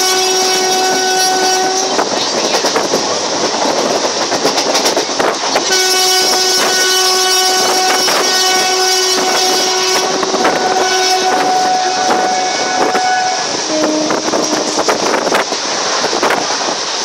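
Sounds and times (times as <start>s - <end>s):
locomotive horn blast: 0.0s - 2.0s, 5.6s - 15.3s
wheels clacking over rail joints: 0.0s - 17.0s.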